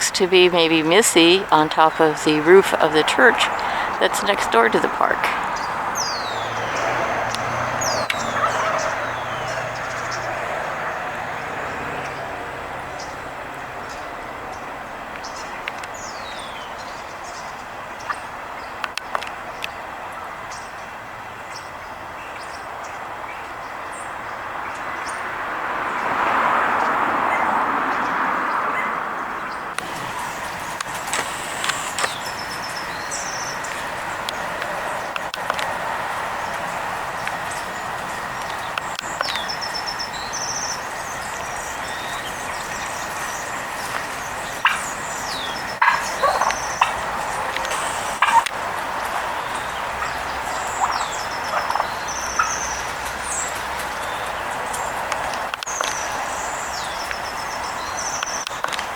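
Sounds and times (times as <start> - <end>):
background hum: 0.0 - 25.2
road vehicle passing: 0.0 - 58.9
small birds trilling and chirping: 3.2 - 25.3, 28.8 - 58.9
turkey gobbling: 7.9 - 10.3, 43.9 - 48.5, 49.1 - 52.6.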